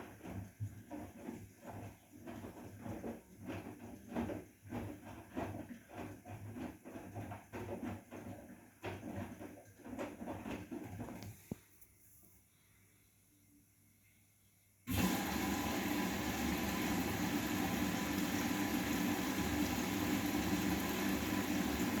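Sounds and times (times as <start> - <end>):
washing machine drum churning: 0.0 - 11.1, 14.9 - 22.0.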